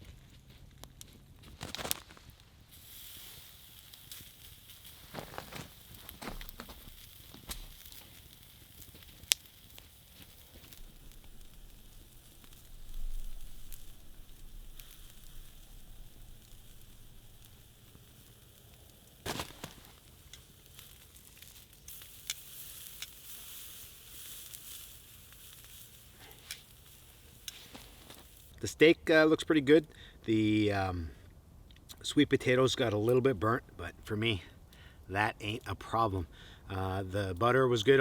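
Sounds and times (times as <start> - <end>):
campfire crackling: 0.0 - 38.0
steak sizzling on a grill: 2.6 - 28.6.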